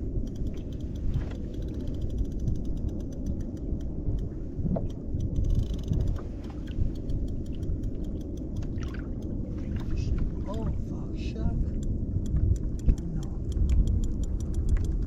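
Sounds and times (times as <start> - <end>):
wind buffeting microphone: 0.0 - 15.0
faint rapid ticking: 0.2 - 4.3, 4.9 - 9.4, 11.8 - 15.0.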